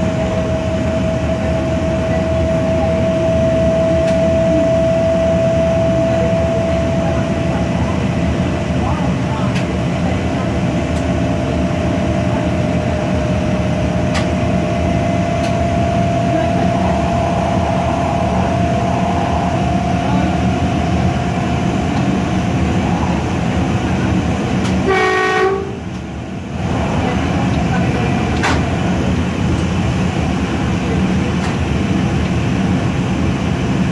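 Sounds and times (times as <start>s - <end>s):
train wheels rumbling on rail: 0.0s - 33.9s
train horn blast: 24.8s - 25.9s.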